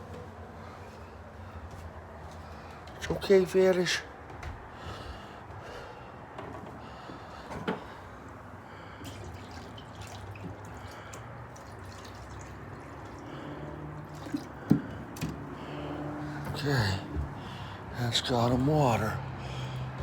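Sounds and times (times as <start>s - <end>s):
water trickling into a bowl: 9.0s - 14.7s.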